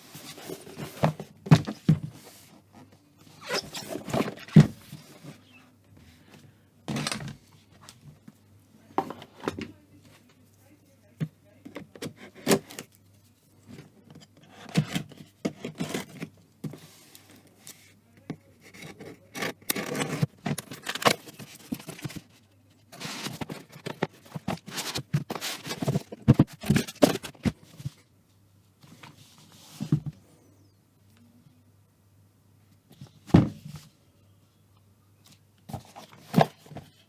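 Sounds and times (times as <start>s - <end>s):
cardboard scraping and rustling: 0.0s - 2.7s, 3.3s - 5.5s, 13.8s - 17.6s, 18.6s - 28.0s, 35.7s - 37.0s.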